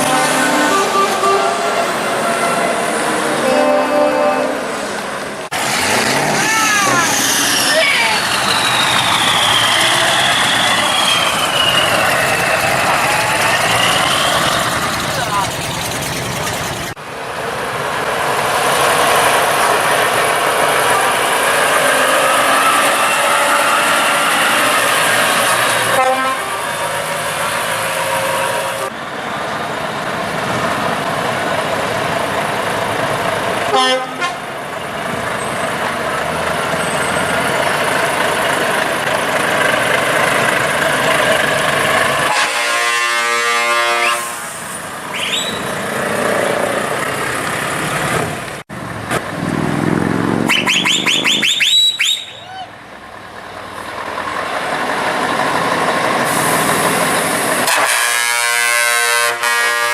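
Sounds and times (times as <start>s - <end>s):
truck horn toots: 0.0s - 2.8s, 3.4s - 4.8s, 21.8s - 24.8s, 25.8s - 26.6s, 33.7s - 34.5s, 42.2s - 44.5s, 57.6s - 59.9s
heavy trucks running: 0.0s - 59.9s.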